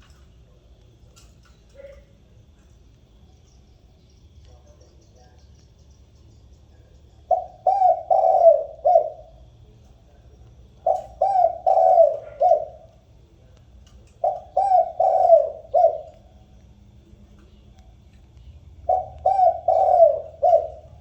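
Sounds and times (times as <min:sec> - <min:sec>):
dove cooing: 0:06.5 - 0:09.7, 0:10.7 - 0:13.1, 0:14.0 - 0:16.5, 0:17.3 - 0:21.0.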